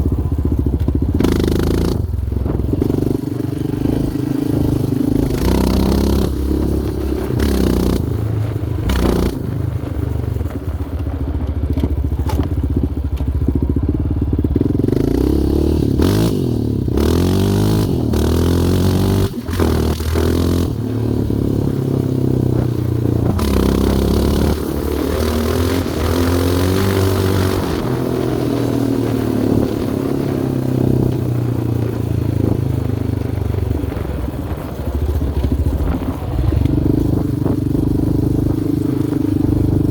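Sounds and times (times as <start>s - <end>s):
quad engine revving: 0.0s - 10.1s, 13.9s - 39.9s.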